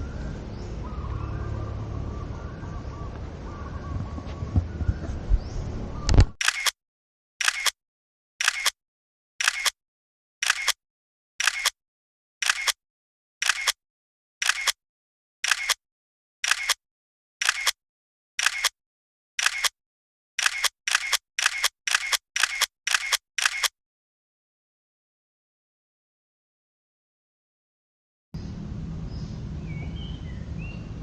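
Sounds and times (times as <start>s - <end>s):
camera shutter clicking: 6.4s - 6.8s, 7.4s - 7.8s, 8.4s - 8.8s, 9.4s - 9.8s, 10.4s - 10.8s, 11.4s - 11.8s, 12.4s - 12.8s, 13.4s - 13.8s, 14.4s - 14.8s, 15.4s - 15.8s, 16.4s - 16.8s, 17.4s - 17.8s, 18.4s - 18.8s, 19.4s - 19.8s, 20.4s - 23.8s.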